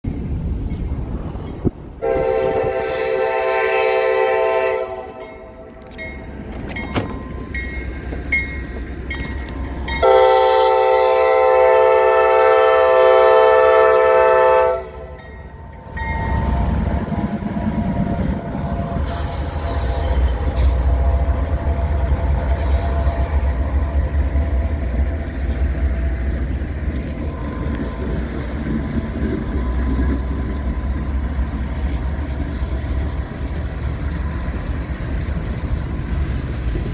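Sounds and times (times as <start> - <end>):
locomotive engines rumbling: 0.0 - 36.9
locomotive horn blasts: 2.0 - 5.7, 10.0 - 15.2, 18.7 - 24.6
wheels clicking over rail joints: 5.0 - 10.2, 14.9 - 36.9.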